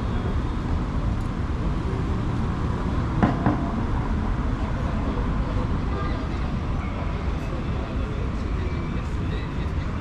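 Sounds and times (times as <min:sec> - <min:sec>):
street traffic rumble: 0:00.0 - 0:10.0
sharp knocks: 0:03.2 - 0:03.7.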